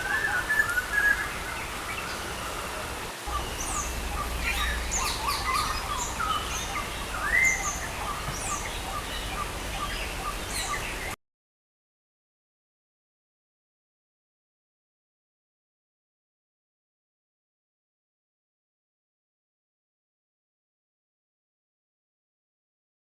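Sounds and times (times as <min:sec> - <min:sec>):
birds chirping: 0:00.0 - 0:11.2
rain hissing: 0:00.4 - 0:11.2.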